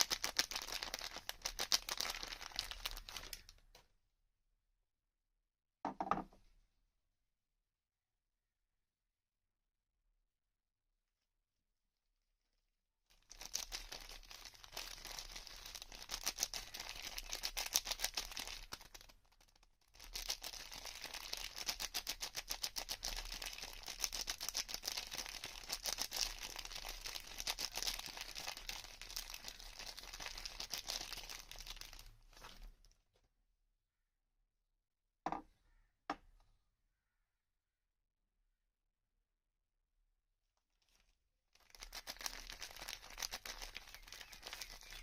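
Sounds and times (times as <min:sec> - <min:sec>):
packaging crinkling: 0:00.0 - 0:03.8, 0:13.1 - 0:33.0, 0:40.8 - 0:45.0.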